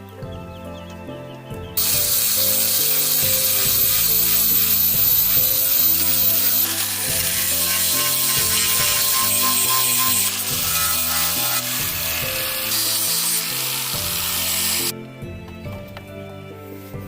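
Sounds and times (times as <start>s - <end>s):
background music: 0.0s - 17.0s
tool rasping wood: 1.8s - 14.9s.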